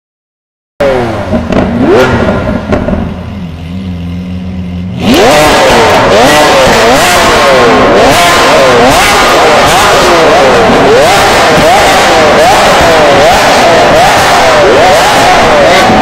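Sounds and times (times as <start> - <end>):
exhaust cracks: 0.8 - 16.0
sports car engine revving: 0.8 - 16.0.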